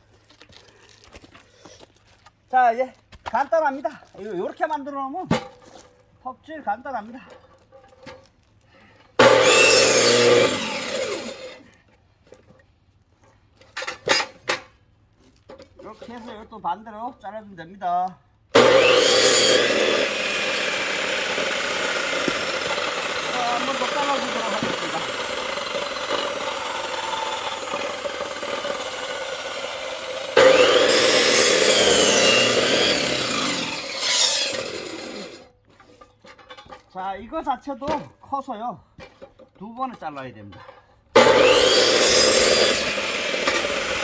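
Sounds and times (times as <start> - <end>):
electric saw winding down: 9.2 - 11.6, 18.6 - 35.4, 41.2 - 44.0.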